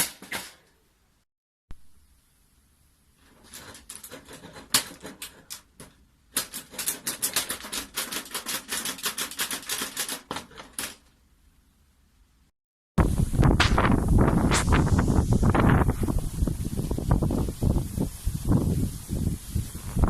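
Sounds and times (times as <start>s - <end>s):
steel sheet clicking and rattling: 0.0s - 0.8s, 3.2s - 11.1s.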